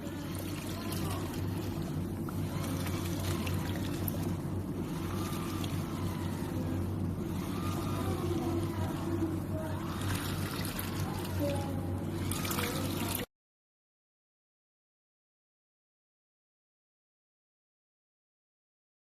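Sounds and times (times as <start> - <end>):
washing machine motor hum: 0.0 - 13.3
water swishing and trickling: 0.0 - 13.3.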